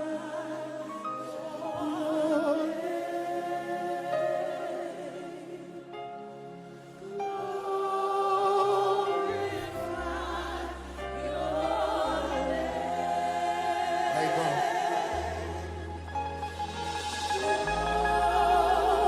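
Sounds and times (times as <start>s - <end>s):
voices singing with vibrato: 0.0s - 6.0s, 7.0s - 19.0s
deep bass: 9.6s - 19.0s.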